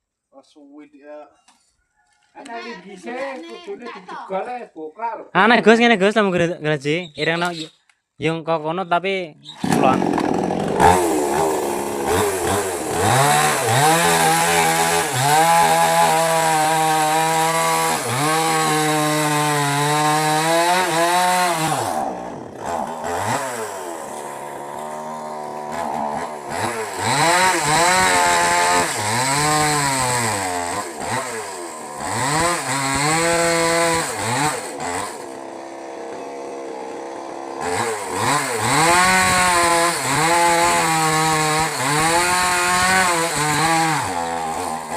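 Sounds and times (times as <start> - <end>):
mini chainsaw cutting wood: 9.6 - 44.9.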